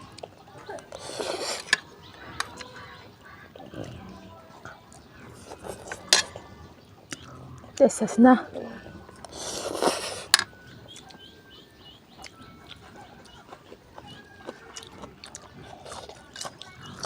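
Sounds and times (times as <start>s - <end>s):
small birds chirping: 0.0s - 17.0s
thin whistled bird calls: 9.5s - 13.4s.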